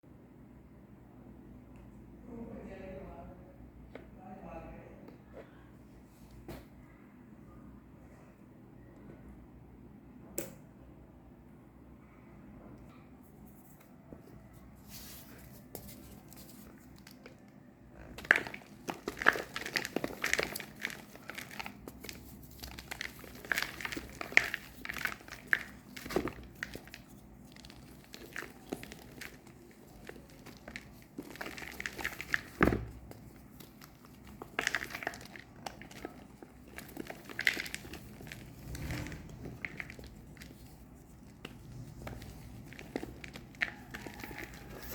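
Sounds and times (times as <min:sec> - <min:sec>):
chalk crunching and crackling: 0:14.6 - 0:17.4, 0:18.0 - 0:44.9.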